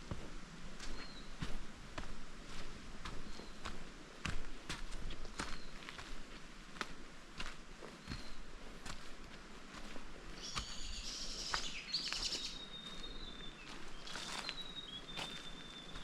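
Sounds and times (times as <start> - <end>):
footsteps on forest track: 0.0 - 16.0
birds chirping: 5.2 - 6.2, 7.9 - 8.7, 10.3 - 16.0.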